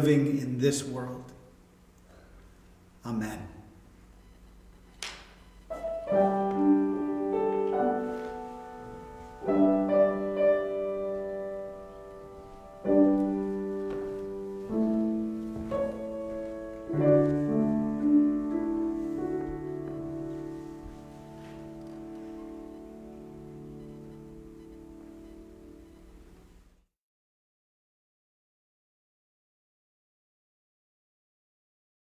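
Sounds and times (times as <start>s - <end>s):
slow piano music: 5.7s - 26.1s.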